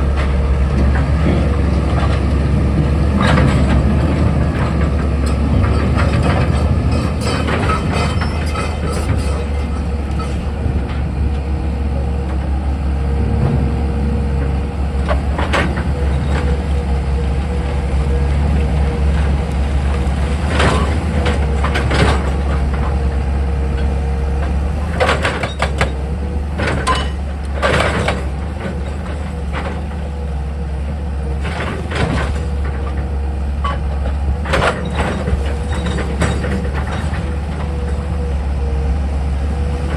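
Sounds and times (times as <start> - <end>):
diesel engine humming: 0.0 - 39.9
metallic clanks and knocks: 3.0 - 11.4.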